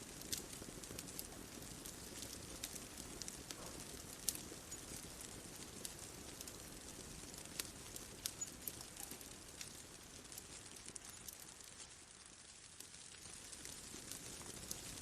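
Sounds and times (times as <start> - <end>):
bonfire crackling: 0.0 - 15.0
soft low hiss: 0.0 - 15.0.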